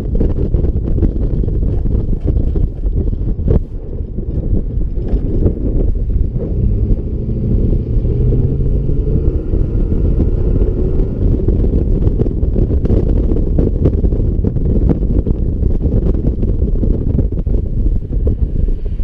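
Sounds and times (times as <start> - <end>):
pickup truck exhaust note: 5.5 - 13.6.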